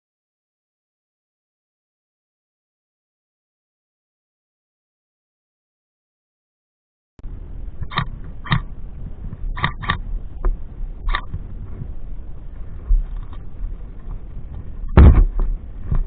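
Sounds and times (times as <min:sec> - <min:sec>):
wind rumble on microphone: 0:07.2 - 0:16.0
loud deep knock: 0:15.0 - 0:15.4.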